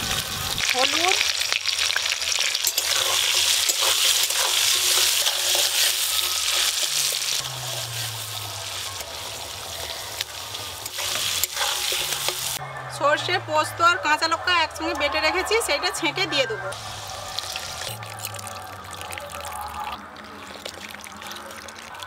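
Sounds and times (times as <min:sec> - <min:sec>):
taro sizzling in hot oil: 0:00.0 - 0:12.6, 0:16.7 - 0:22.0
metal spatula tapping and scraping: 0:02.5 - 0:07.4, 0:10.8 - 0:12.6.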